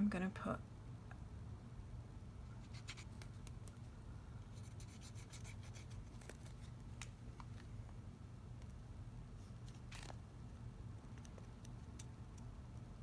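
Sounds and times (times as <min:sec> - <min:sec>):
low steady hum: 0:00.0 - 0:13.0
paper rustling: 0:04.6 - 0:07.7.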